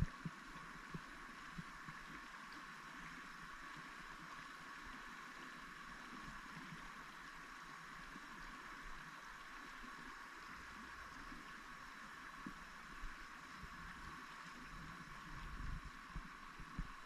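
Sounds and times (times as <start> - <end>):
flowing water rushing: 0.0 - 17.0.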